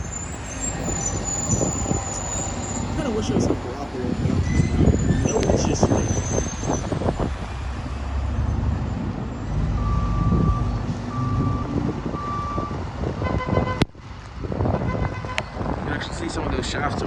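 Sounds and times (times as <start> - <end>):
truck reversing alarm beeping: 0.0 - 7.0, 8.2 - 13.4
truck engine running: 0.0 - 13.2
wind: 0.0 - 17.0.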